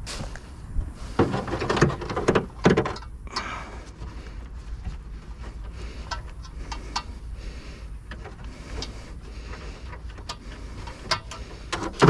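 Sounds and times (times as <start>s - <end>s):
low steady hum: 0.0s - 12.0s
plastic and metal clicks and scrapes: 8.1s - 12.0s.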